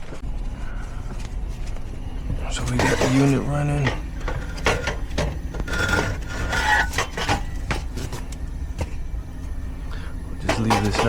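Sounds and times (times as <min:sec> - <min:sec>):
air conditioner hum: 0:00.0 - 0:11.0
hands handling hard parts: 0:02.7 - 0:09.0.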